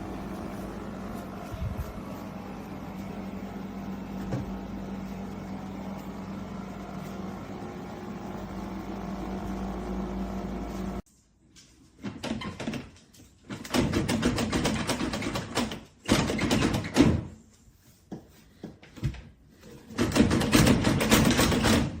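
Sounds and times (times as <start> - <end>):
clattering and knocking: 19.9 - 22.0.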